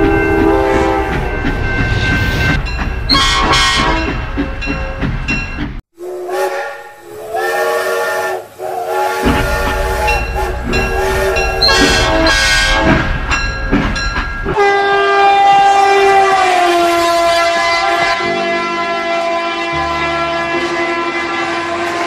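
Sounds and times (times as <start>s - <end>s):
toy train electronic horn: 0.0s - 1.1s, 6.0s - 13.0s, 14.6s - 22.0s.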